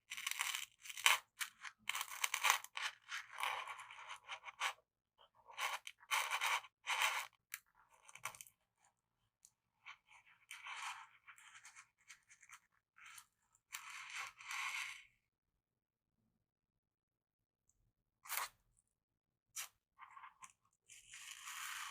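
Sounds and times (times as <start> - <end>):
scraping and scratching strokes: 19.6 - 21.9.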